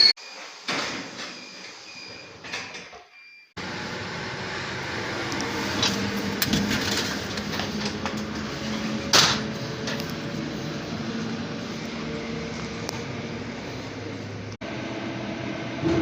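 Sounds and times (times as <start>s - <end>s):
electric train hum: 3.6s - 16.0s.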